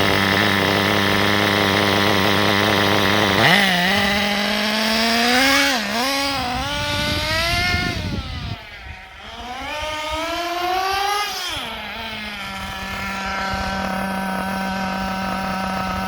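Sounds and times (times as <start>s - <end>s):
nitro engine revving and idling: 0.0s - 16.0s.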